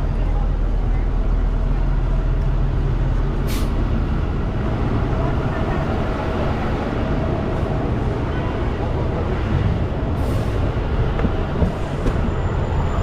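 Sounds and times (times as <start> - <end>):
road and traffic noise: 0.0 - 13.0
brief hiss: 3.4 - 3.8.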